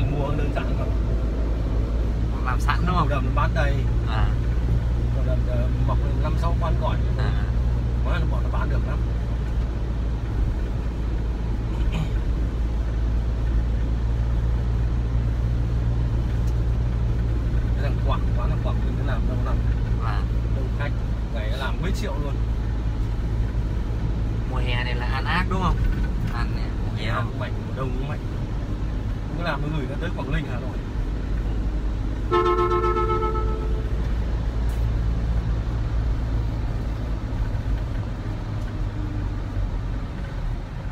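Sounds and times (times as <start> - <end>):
vehicle engine rumble: 0.0 - 40.9
two-note vehicle horn: 32.3 - 33.9.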